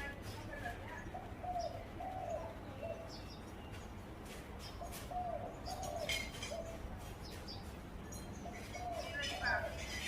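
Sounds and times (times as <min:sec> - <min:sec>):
small birds chirping faintly: 0:00.0 - 0:10.0
dove cooing: 0:00.9 - 0:03.3, 0:04.8 - 0:07.0, 0:08.4 - 0:10.0.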